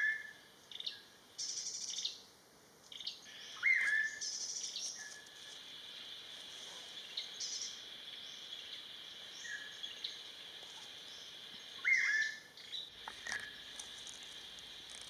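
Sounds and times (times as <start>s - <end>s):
bird calling: 3.0s - 5.5s, 8.7s - 14.1s.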